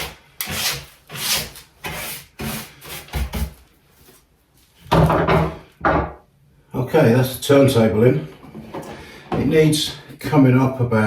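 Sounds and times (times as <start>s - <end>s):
hand rasping wood: 0.0s - 3.6s.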